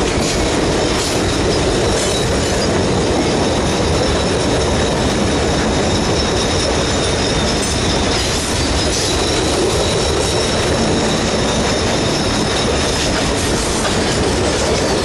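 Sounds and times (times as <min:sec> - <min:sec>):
diesel locomotive passing: 0:00.0 - 0:15.0
high wheel squeal: 0:00.0 - 0:15.0
train wheels on rails: 0:00.0 - 0:15.0.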